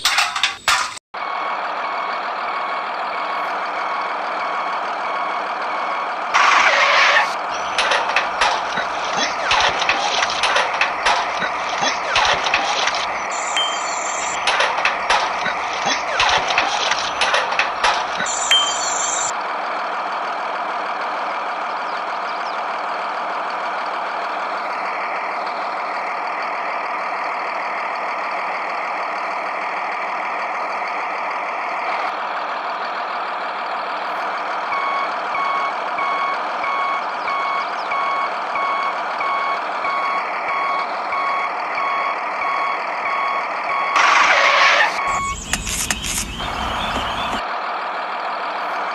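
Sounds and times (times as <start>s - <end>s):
electronic reversing beep: 11.4s - 17.1s, 18.1s - 19.3s, 34.7s - 47.4s.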